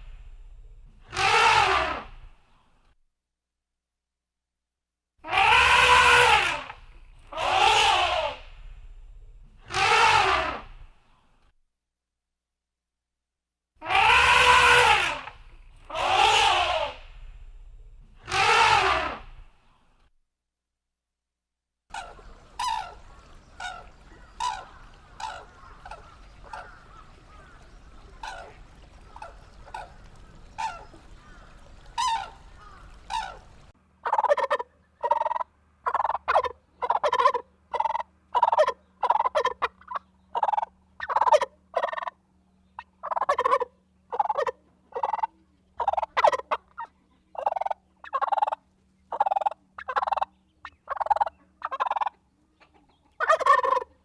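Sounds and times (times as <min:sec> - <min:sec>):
background hum: 0:00.0 - 0:03.0, 0:05.2 - 0:11.5, 0:13.8 - 0:20.1, 0:21.9 - 0:54.0
large bird calling: 0:05.3 - 0:10.8, 0:13.8 - 0:19.6, 0:21.9 - 0:33.7.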